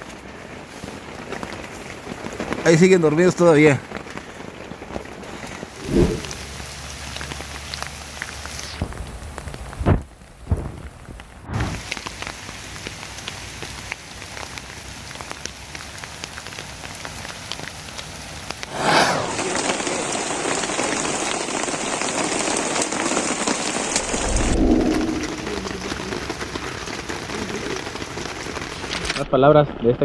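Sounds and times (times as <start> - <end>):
rain drops ticking: 0.0 - 5.8, 6.5 - 18.7, 25.1 - 29.2
heavy rain hiss: 11.6 - 29.2.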